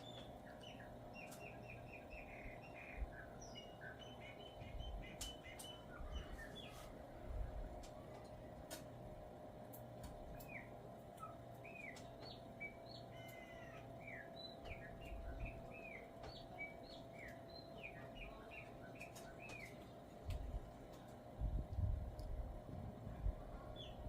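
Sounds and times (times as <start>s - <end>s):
blackbird singing: 0.0s - 6.9s, 10.3s - 20.0s, 23.6s - 24.0s
steady low hum: 0.0s - 24.0s.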